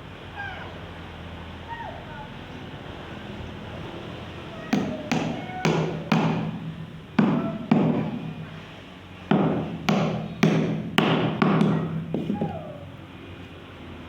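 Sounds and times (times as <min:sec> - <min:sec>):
tool knocking on bamboo: 0:04.7 - 0:08.6, 0:09.3 - 0:12.6.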